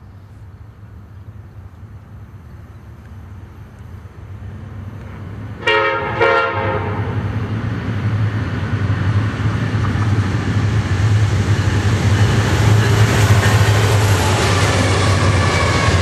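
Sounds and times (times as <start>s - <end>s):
diesel train rumble: 0.0s - 16.0s
train air horn blasts: 5.6s - 7.2s.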